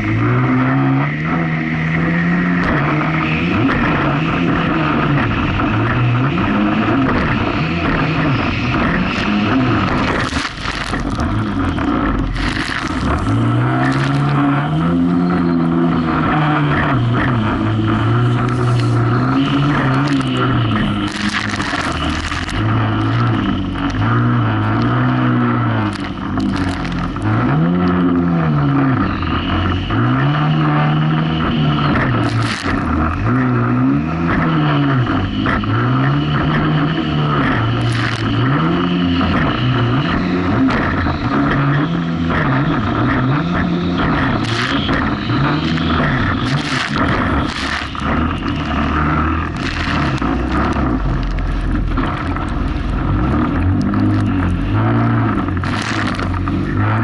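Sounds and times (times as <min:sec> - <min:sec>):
jet ski engine running hard: 0:00.0 - 0:29.9, 0:39.0 - 0:56.9
water splashing: 0:05.3 - 0:27.3, 0:43.2 - 0:56.9.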